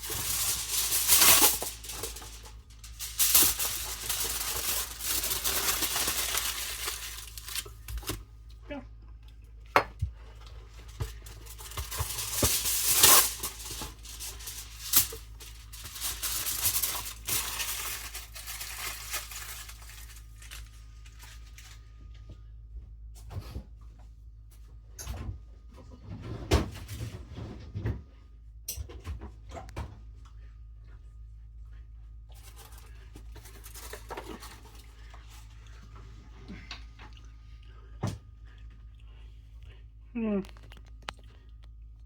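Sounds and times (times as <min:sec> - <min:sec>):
rustling and crinkling: 0:00.0 - 0:08.3, 0:10.0 - 0:22.5, 0:31.7 - 0:37.4, 0:38.2 - 0:42.0.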